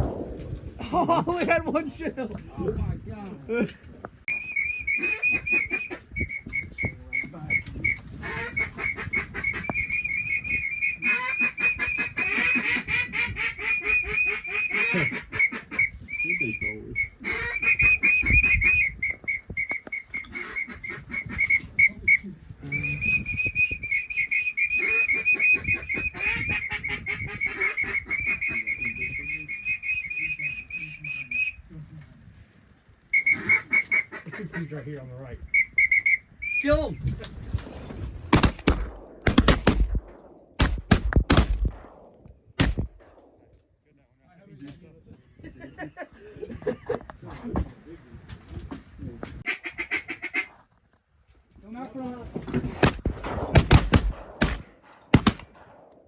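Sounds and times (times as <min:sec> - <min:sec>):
duck whistle trilling: 0:04.3 - 0:12.9, 0:13.5 - 0:31.6, 0:33.1 - 0:34.2, 0:35.5 - 0:36.7.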